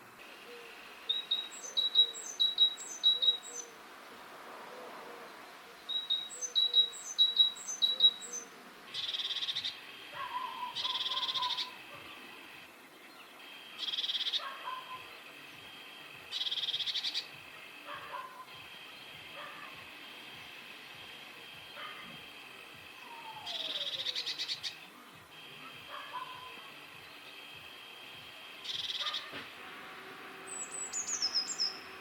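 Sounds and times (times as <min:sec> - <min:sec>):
blue tit buzzy churring calls: 0:01.1 - 0:03.7, 0:05.9 - 0:12.3, 0:13.7 - 0:15.1, 0:16.2 - 0:17.7, 0:22.9 - 0:24.9, 0:28.6 - 0:29.3, 0:30.2 - 0:32.0.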